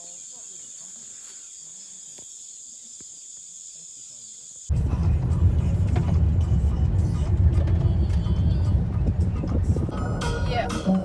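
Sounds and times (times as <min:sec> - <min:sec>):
insects trilling: 0:00.0 - 0:04.8
loud low rumble: 0:04.7 - 0:11.0.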